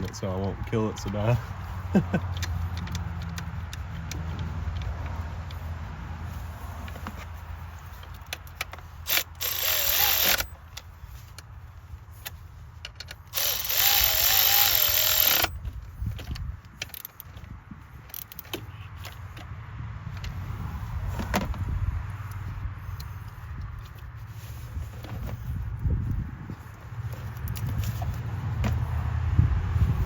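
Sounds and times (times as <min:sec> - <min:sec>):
cordless ratchet running: 0:00.0 - 0:05.8, 0:08.0 - 0:10.8, 0:13.1 - 0:17.4, 0:18.0 - 0:19.1.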